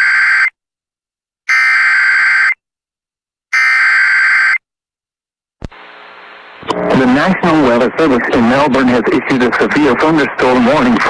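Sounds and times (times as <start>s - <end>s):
harsh screeching data bursts: 0.0s - 0.6s, 1.5s - 2.6s, 3.6s - 4.6s.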